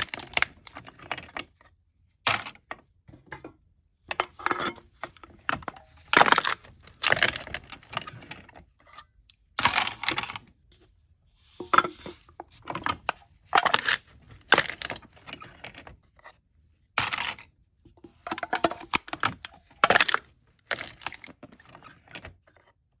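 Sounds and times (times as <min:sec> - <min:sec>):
drink cans being crushed: 0:00.0 - 0:00.7, 0:05.6 - 0:08.0, 0:13.6 - 0:15.3, 0:18.3 - 0:21.4.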